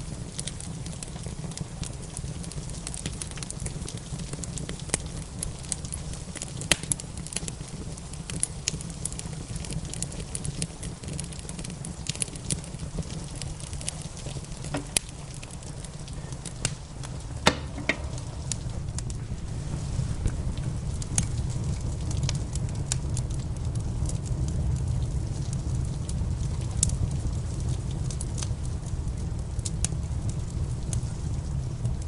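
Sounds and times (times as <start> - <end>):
rain hissing: 0.0 - 32.0
wood fire crackling and popping: 0.0 - 32.0
low rumble: 14.4 - 32.0.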